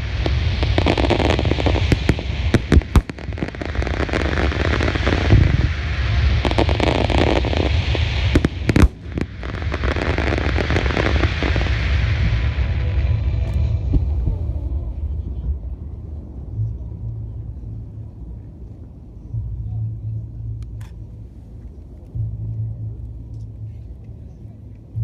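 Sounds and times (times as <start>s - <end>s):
fireworks crackling: 0.0s - 15.2s
fireworks booming: 0.0s - 16.2s.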